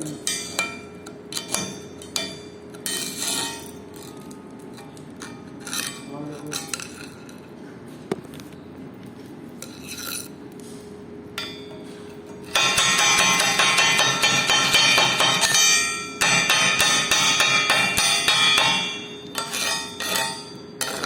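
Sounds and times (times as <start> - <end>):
metallic clinks and scrapes: 9.6 - 10.4.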